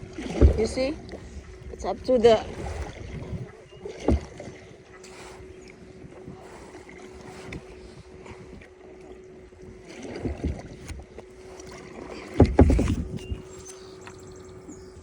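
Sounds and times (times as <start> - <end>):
wind buffeting microphone: 0.0 - 15.0
low thumps: 12.2 - 13.5.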